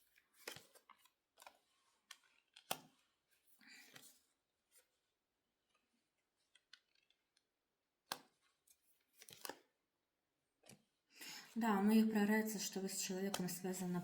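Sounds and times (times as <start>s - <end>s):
cards rustling: 0.0s - 5.0s, 5.8s - 7.4s, 8.1s - 9.8s.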